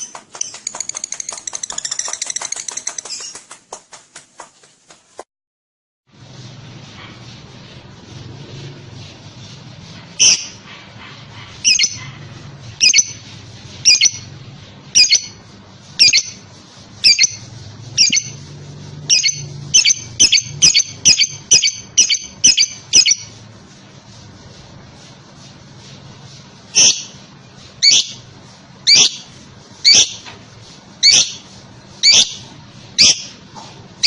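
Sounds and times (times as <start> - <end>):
lovebird shrill squawking: 10.2 - 10.6, 11.7 - 12.0, 12.8 - 13.2, 13.9 - 14.2, 17.0 - 17.4, 18.0 - 18.3, 19.1 - 23.3, 26.8 - 27.2, 27.8 - 28.2, 28.9 - 29.2, 29.8 - 30.2, 31.0 - 31.4, 32.0 - 32.4.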